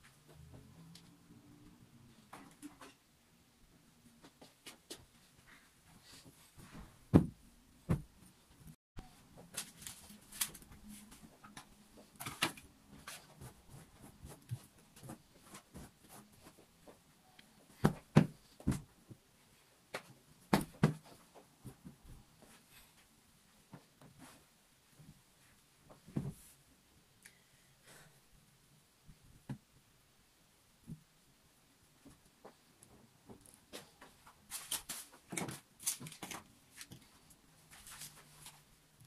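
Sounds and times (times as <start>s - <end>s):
heavy thumps: 6.6s - 8.2s.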